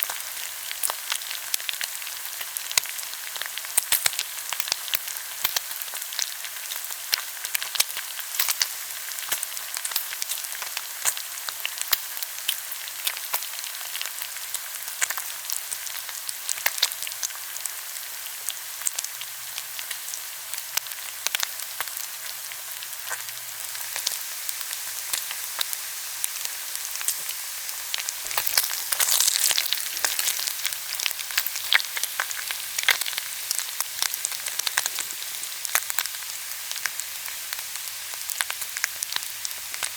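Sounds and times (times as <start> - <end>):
pork sizzling on a grill: 0.0 - 39.9
fat crackling and popping: 25.0 - 37.0.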